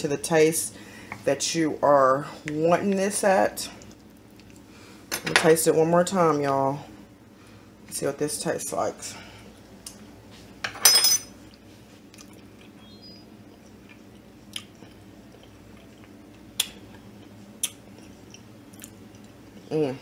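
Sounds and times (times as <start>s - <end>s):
person chewing quietly: 3.8s - 4.7s, 11.5s - 20.0s.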